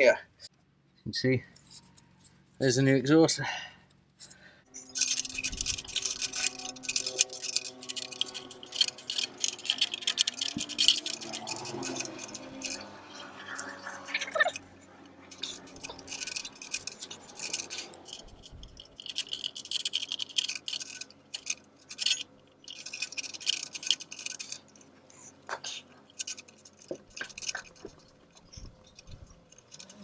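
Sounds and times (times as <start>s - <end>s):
metal clinking and scraping: 1.5s - 2.8s, 4.2s - 30.0s.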